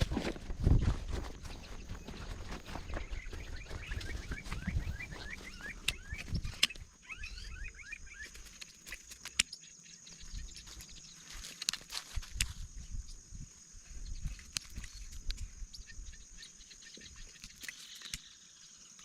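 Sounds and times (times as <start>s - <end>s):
bird chirping: 0.0s - 11.8s, 12.4s - 19.0s
sharp clicks: 5.8s - 6.9s, 8.2s - 9.6s.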